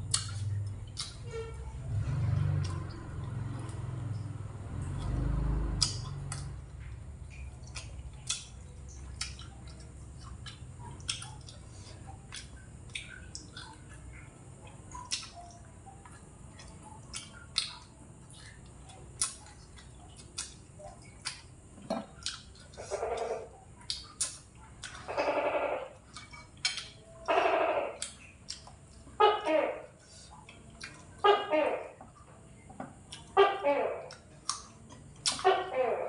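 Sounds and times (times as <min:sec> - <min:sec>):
wet mouth clicks and lip smacks: 0:00.1 - 0:01.2, 0:05.8 - 0:06.5, 0:07.3 - 0:11.6, 0:14.9 - 0:18.6, 0:22.2 - 0:22.8, 0:23.8 - 0:25.0, 0:28.0 - 0:28.8, 0:34.1 - 0:35.5.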